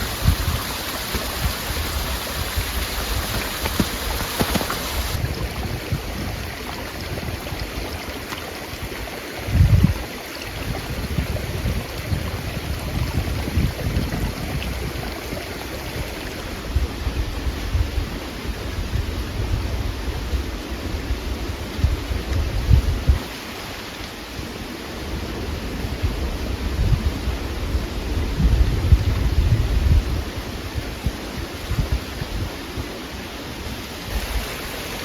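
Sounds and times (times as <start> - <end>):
gusty outdoor rushing noise: 0.0 - 35.0.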